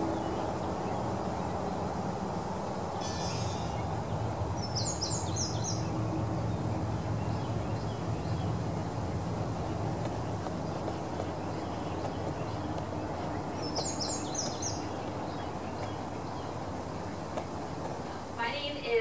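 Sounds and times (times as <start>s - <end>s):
birds calling: 0.0s - 19.0s
low background rumble: 0.0s - 19.0s.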